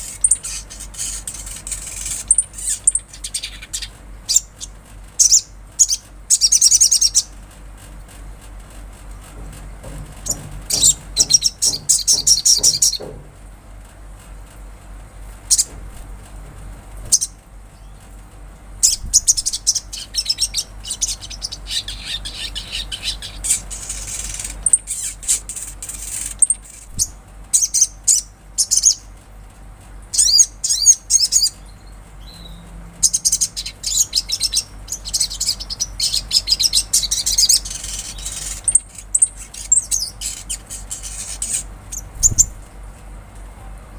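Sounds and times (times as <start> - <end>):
sunbird chirping trills: 0.0 - 7.3, 10.2 - 13.0, 17.1 - 18.0, 18.8 - 29.1, 30.1 - 42.6.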